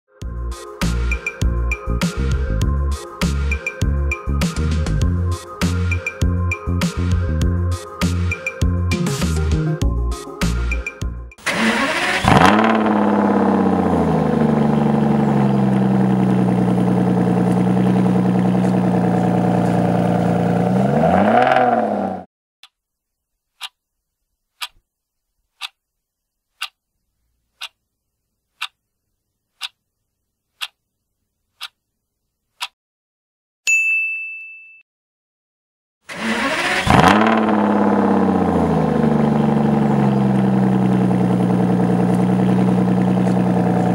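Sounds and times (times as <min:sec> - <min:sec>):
car engine revving: 0:11.4 - 0:22.3, 0:36.1 - 0:43.9
timer ticking: 0:28.6 - 0:28.8, 0:30.6 - 0:30.8.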